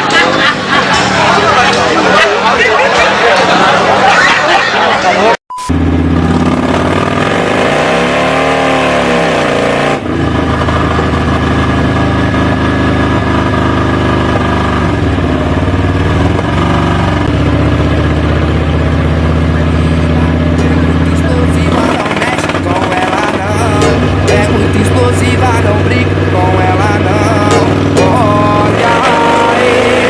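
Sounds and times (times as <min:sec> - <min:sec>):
motorcycle engine at high revs: 0:05.7 - 0:30.0
rising and falling tone: 0:16.3 - 0:30.0.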